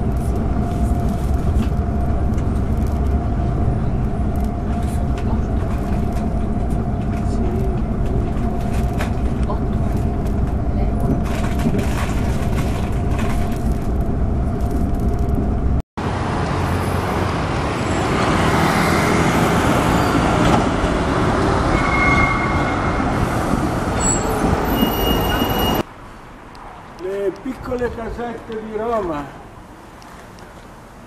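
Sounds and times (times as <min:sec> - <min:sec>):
train rumble from inside carriage: 0:00.0 - 0:15.8, 0:19.8 - 0:25.9
street traffic passing: 0:00.0 - 0:31.0
brief high squeals: 0:21.7 - 0:23.2.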